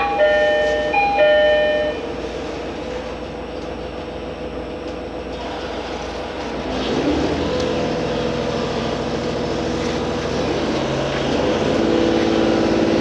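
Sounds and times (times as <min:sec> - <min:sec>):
short electronic chime: 0:00.0 - 0:02.1
railcar running noise in cabin: 0:00.0 - 0:13.0.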